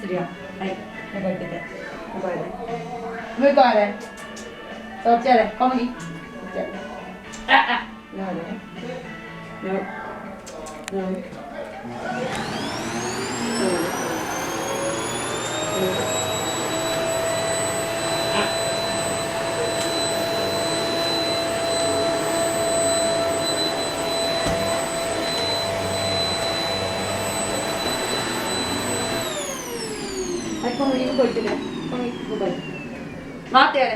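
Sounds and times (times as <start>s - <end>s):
vacuum cleaner running: 11.8s - 33.9s.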